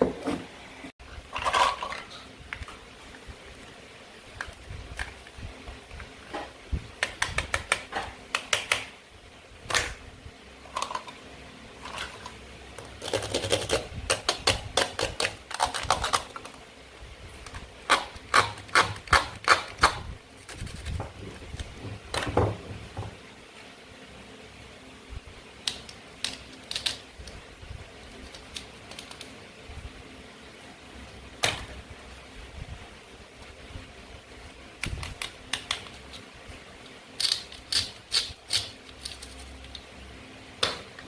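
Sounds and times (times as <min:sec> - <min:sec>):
toy food being cut: 0:17.8 - 0:21.0, 0:37.2 - 0:39.4.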